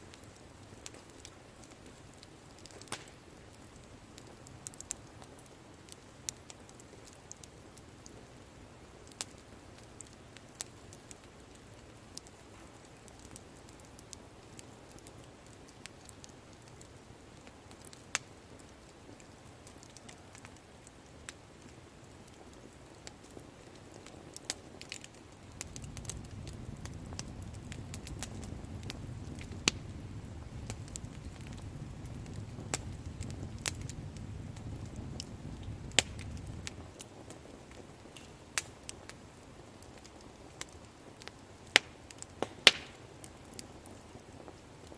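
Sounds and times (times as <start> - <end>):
wood fire crackling: 0.0 - 44.9
low rumble: 25.5 - 36.8.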